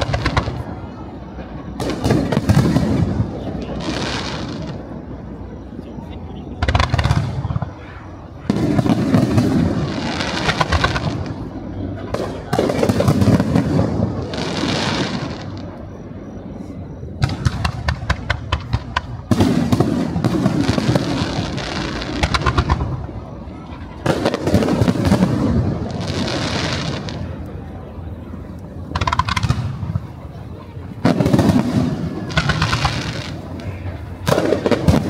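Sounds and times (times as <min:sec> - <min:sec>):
sharp firework pops: 0:00.0 - 0:00.7, 0:17.2 - 0:23.0, 0:28.9 - 0:30.1, 0:31.0 - 0:35.0
firework booms with crackling fizz: 0:00.0 - 0:05.4, 0:06.6 - 0:15.8, 0:17.1 - 0:35.0.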